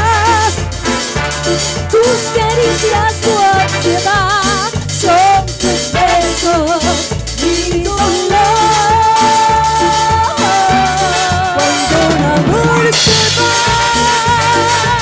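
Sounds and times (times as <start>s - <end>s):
latin band playing: 0.0s - 15.0s.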